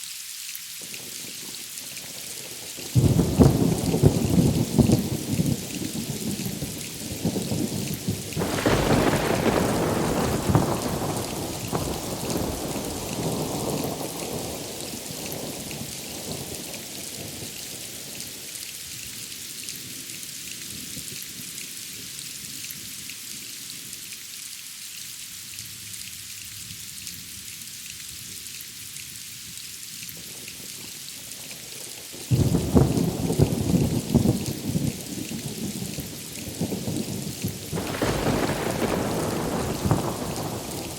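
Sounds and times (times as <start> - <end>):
steady rain: 0.0 - 40.9
thunder rumbling: 3.0 - 16.7, 36.6 - 40.9.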